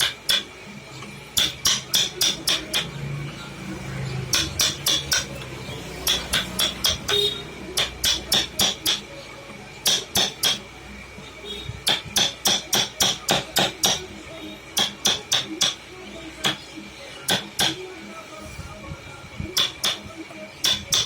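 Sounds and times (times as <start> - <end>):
hand hammer tapping metal: 0.0 - 0.5, 1.4 - 3.0, 4.3 - 9.1, 9.8 - 10.6, 11.8 - 14.1, 14.8 - 15.8, 16.4 - 16.7, 17.3 - 17.8, 19.6 - 21.0.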